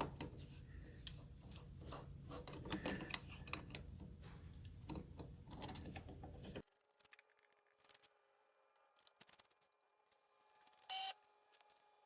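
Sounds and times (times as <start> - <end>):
low steady hum: 0.0 - 6.6
metal parts clicking and tapping: 0.0 - 6.6.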